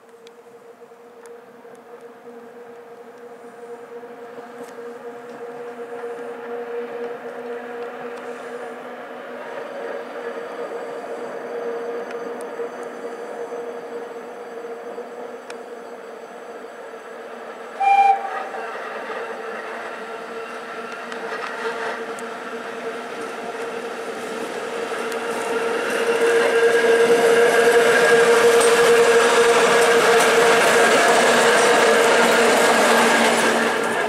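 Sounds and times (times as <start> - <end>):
rumble of train wheels on rail: 0.0 - 34.0
train horn blast: 17.8 - 18.7.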